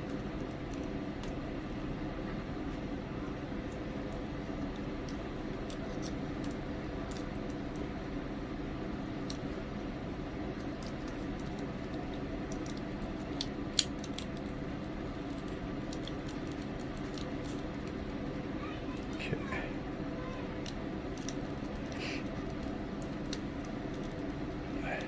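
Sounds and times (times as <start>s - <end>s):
steady background hum: 0.0s - 25.0s.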